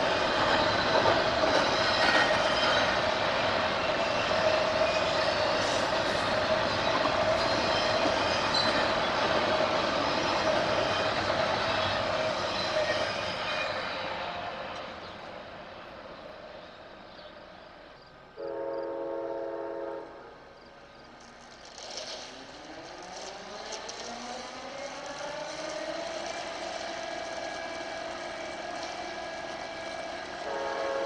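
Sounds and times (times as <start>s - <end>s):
train noise: 0.0s - 31.0s
locomotive horn chord: 18.4s - 20.3s, 30.5s - 31.0s.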